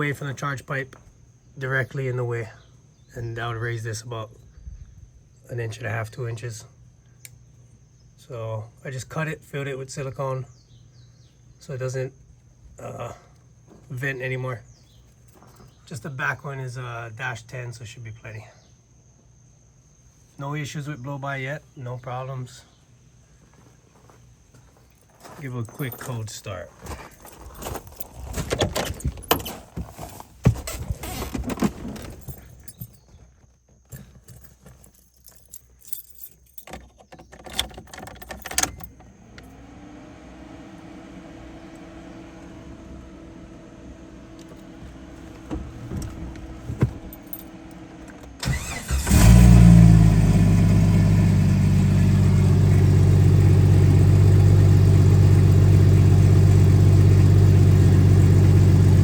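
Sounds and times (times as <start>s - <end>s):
clicks and rattles: 27.0s - 39.1s
engine idling: 39.1s - 59.0s
starter cranking: 48.0s - 49.6s.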